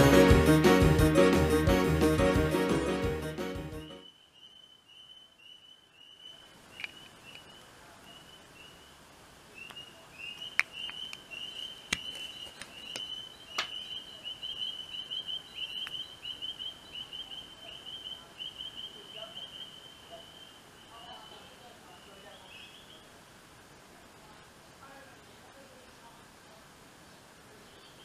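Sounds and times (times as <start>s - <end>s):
small bird chirping: 3.9s - 23.2s, 27.6s - 28.0s.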